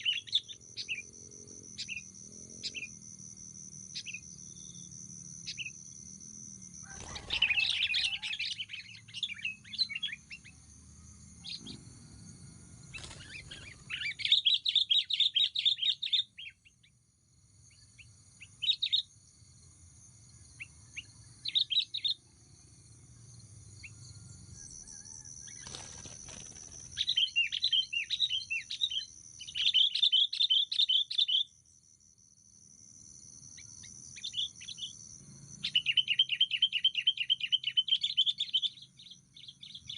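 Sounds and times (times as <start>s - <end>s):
birds chirping: 6.8s - 10.7s, 12.9s - 16.9s, 25.4s - 31.5s.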